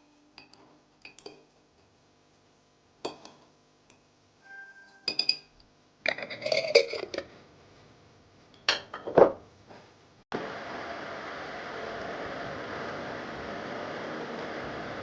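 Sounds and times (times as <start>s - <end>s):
dishes and glassware clinking: 4.6s - 7.3s, 8.6s - 9.4s.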